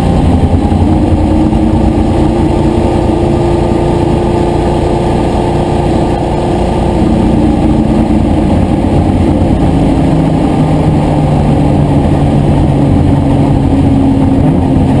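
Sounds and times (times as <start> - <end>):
loud racing car engines: 0.0 - 15.0.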